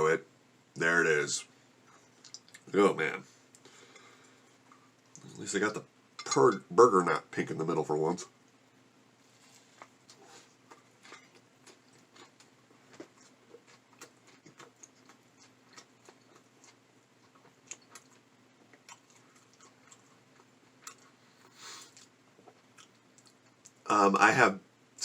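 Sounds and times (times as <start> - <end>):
open-mouthed chewing: 9.5 - 23.8.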